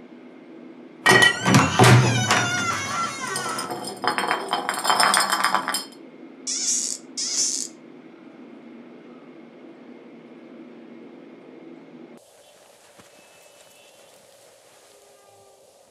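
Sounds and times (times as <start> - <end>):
bottle rolling on tiled floor: 1.1 - 6.0
glass bottle ringing: 1.1 - 6.0
short hissing sounds: 6.5 - 7.7.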